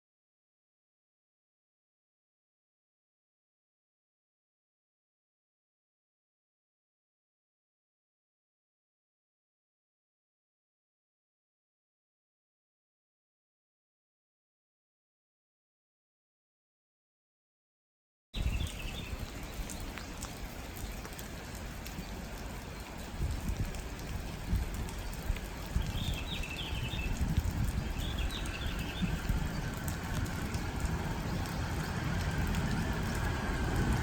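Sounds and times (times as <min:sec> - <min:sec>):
bird chirping: 0:25.7 - 0:33.2.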